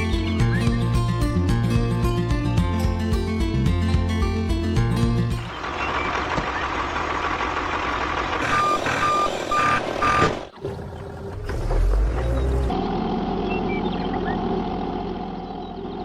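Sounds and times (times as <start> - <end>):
lower engine running: 0.0 - 16.0
heavy vehicle engine running: 3.1 - 16.0
reversing alarm beeping: 8.4 - 10.4.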